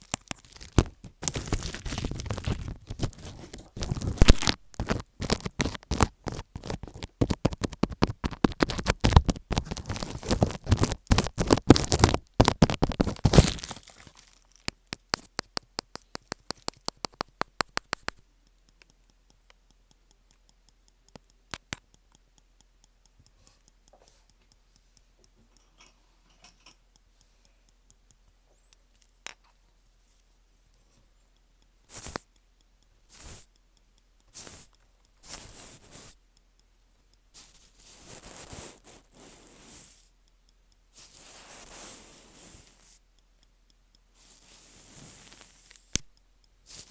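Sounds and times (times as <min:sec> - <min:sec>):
faint ticks: 0:00.0 - 0:13.2, 0:14.1 - 0:46.9
crinkling and rustling: 0:00.0 - 0:18.2
sharp clicks or taps: 0:00.0 - 0:19.6, 0:20.2 - 0:22.2.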